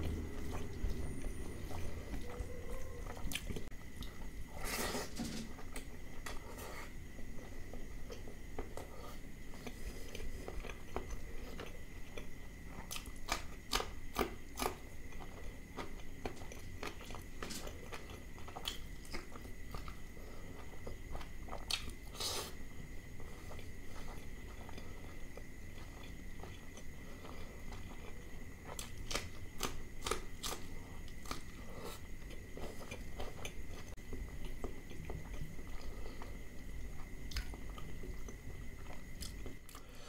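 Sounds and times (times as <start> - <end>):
low hum: 0.0 - 4.5
faint high whine: 0.0 - 13.2
chewing and wet mouth smacks: 37.0 - 39.8.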